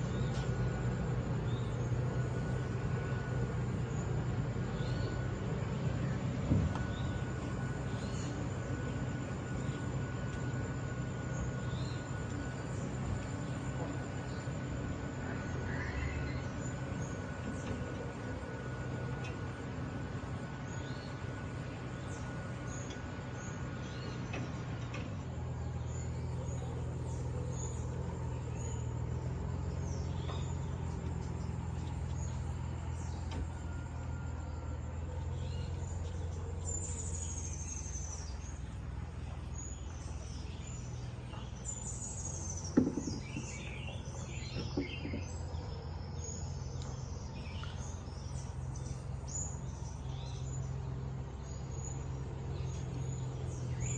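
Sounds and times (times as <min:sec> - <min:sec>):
birds chirping and whistling: 0:00.0 - 0:17.9, 0:34.4 - 0:53.9
steady low hum: 0:00.0 - 0:53.9.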